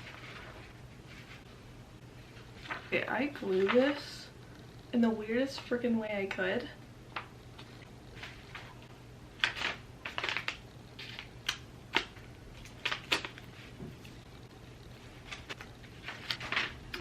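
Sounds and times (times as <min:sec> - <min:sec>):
paper rustling and crinkling: 0:00.0 - 0:01.6, 0:02.2 - 0:04.0, 0:07.2 - 0:14.2, 0:14.9 - 0:17.0.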